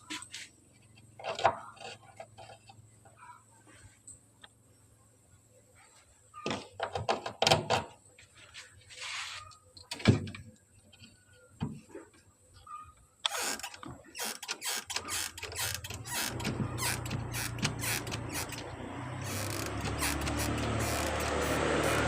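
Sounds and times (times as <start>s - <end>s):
knocks and clicks of tools: 13.2s - 22.0s
rapid clicking: 13.3s - 22.0s.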